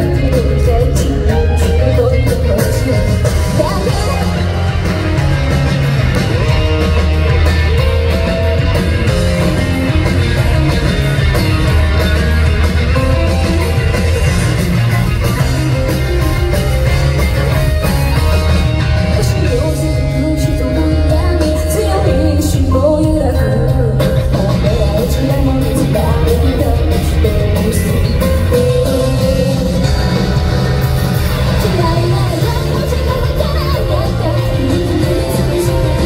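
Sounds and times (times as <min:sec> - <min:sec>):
woman singing: 0:00.0 - 0:04.6, 0:19.1 - 0:30.0, 0:31.6 - 0:36.0
bass guitar: 0:00.0 - 0:36.0
drums: 0:00.0 - 0:36.0
electric guitar: 0:00.0 - 0:36.0.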